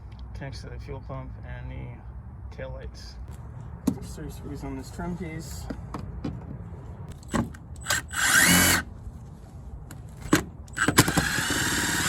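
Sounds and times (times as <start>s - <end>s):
cordless drill spinning: 7.1s - 8.9s, 10.2s - 12.0s.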